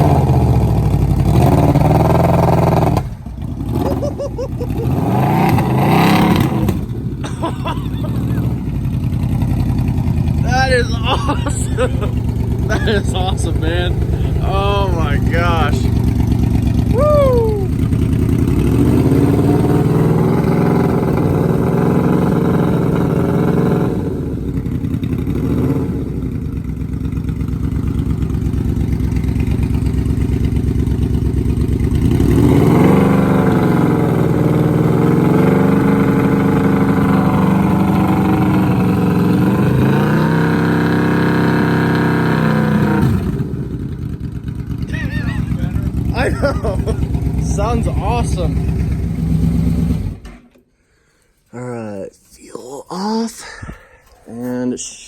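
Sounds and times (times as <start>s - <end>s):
motorcycle engine revving: 0.0s - 50.6s.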